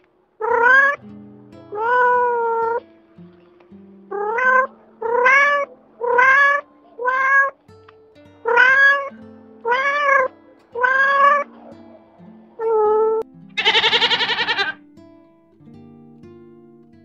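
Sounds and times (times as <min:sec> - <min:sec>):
soft background music: 0:00.2 - 0:17.0
cat meowing: 0:00.4 - 0:01.0, 0:04.1 - 0:07.6, 0:08.4 - 0:09.1, 0:09.7 - 0:11.5, 0:13.6 - 0:14.8.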